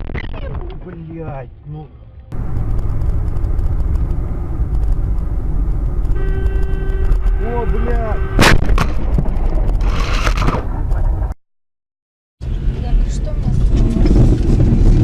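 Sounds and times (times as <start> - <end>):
road and wind rumble: 0.6 - 11.4, 12.4 - 15.0
car horn: 6.0 - 8.8.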